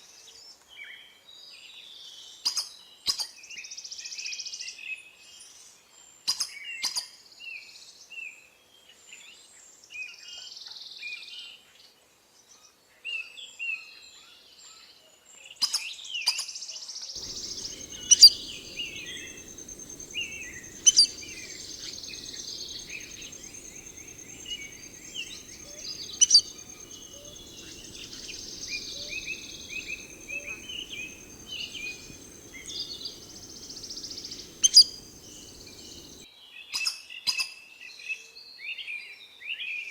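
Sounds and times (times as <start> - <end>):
birds chirping: 17.2 - 36.2.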